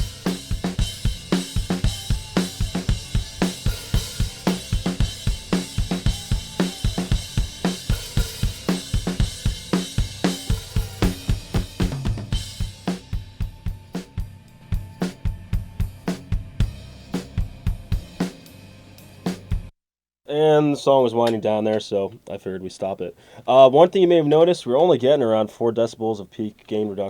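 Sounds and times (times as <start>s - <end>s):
snare drum: 0.0s - 13.0s
crash cymbals: 0.0s - 19.6s.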